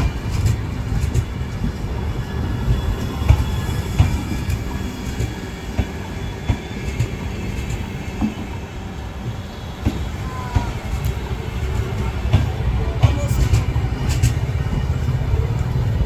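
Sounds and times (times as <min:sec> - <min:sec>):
wheels clicking over rail joints: 0:00.0 - 0:08.6, 0:09.2 - 0:16.0
train coaches rumbling on track: 0:00.0 - 0:16.0.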